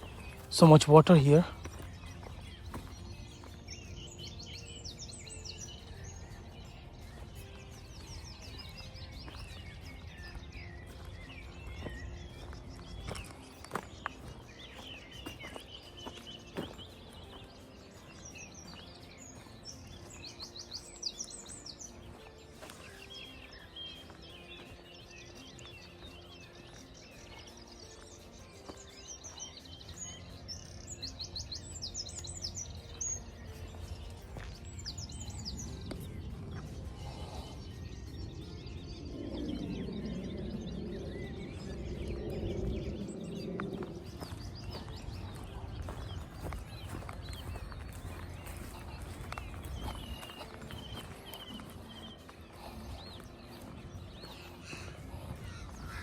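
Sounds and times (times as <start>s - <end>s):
songbirds chirping: 0.0s - 56.0s
low rumble: 33.6s - 50.3s.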